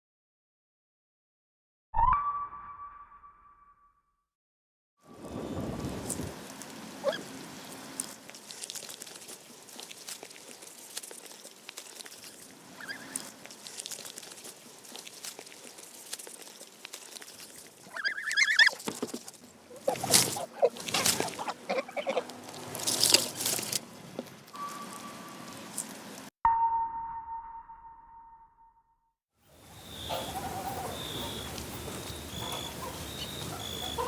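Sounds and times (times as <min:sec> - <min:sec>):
geese honking: 0:12.7 - 0:13.3, 0:19.7 - 0:22.3, 0:29.7 - 0:34.0
scattered ticks: 0:30.0 - 0:34.0.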